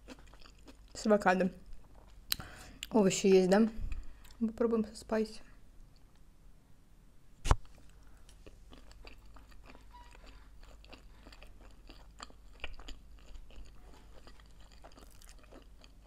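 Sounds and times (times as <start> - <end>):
person chewing: 0.0 - 1.0, 1.7 - 2.9, 7.6 - 16.0.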